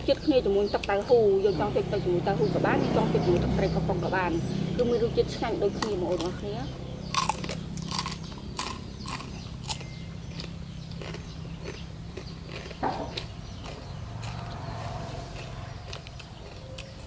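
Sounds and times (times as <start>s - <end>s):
people chewing with wet smacks: 7.1s - 17.0s.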